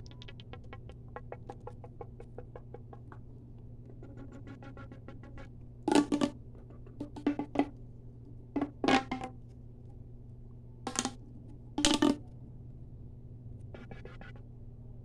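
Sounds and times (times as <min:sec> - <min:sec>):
fast light tapping clicks: 0:00.0 - 0:05.4
faint steady hum: 0:00.0 - 0:15.0.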